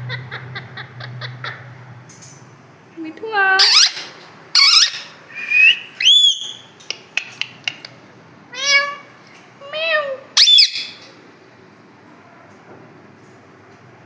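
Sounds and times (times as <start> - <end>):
parrot squawking: 3.6 - 6.6, 8.5 - 11.0
parrot clicks: 6.8 - 8.0.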